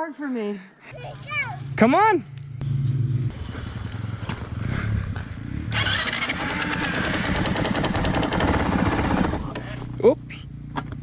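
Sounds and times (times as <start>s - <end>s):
dirt bike engine revving: 2.6s - 10.6s.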